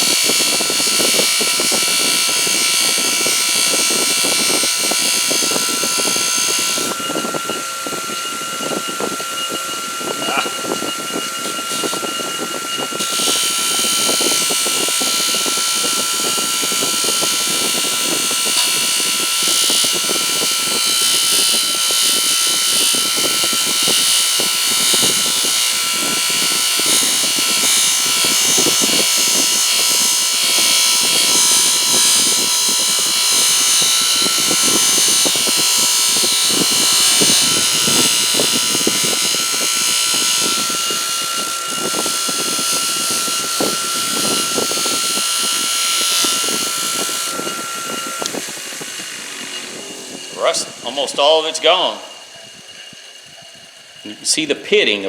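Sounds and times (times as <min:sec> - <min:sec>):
bench motor whining: 0:00.0 - 0:55.0
abrasive wheel scrubbing metal: 0:22.5 - 0:54.4.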